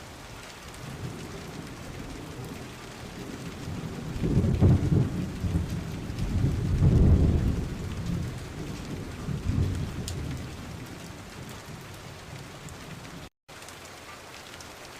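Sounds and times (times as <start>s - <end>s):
steady rain falling: 0.0s - 14.9s.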